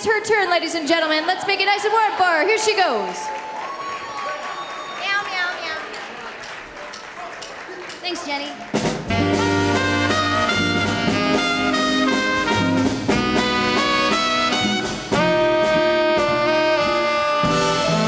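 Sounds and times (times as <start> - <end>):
swing band playing: 8.6 - 18.0.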